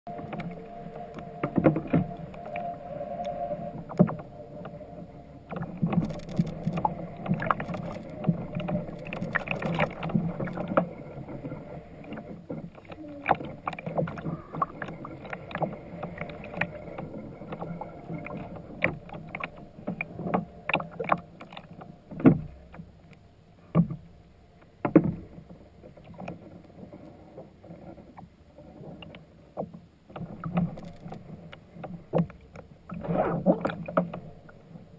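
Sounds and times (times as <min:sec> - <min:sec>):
water lapping: 0:00.1 - 0:23.0
paddle knocking against hull: 0:17.5 - 0:22.8.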